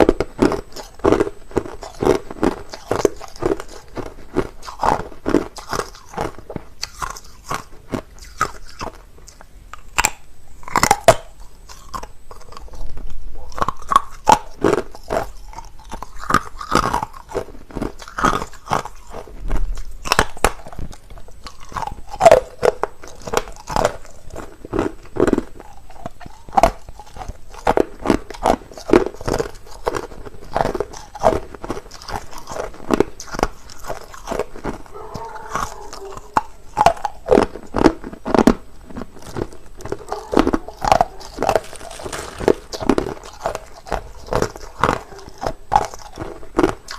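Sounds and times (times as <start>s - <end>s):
person crunching ice: 0.0s - 8.9s, 21.4s - 46.9s.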